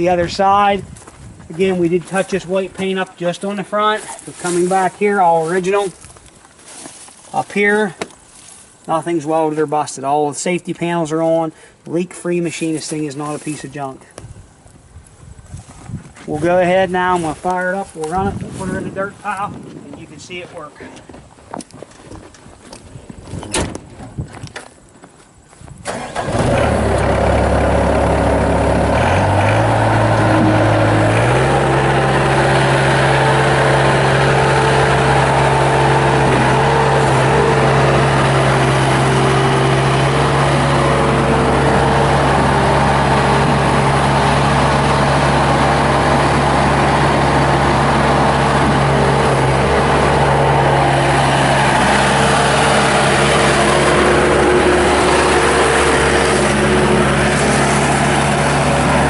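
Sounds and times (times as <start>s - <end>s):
diesel engine starting and revving: 25.8s - 59.0s.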